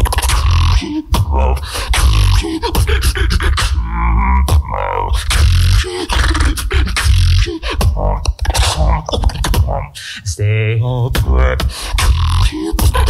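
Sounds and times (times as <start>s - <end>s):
beatboxing: 0.0s - 13.0s
gliding vocal sound: 0.0s - 13.0s.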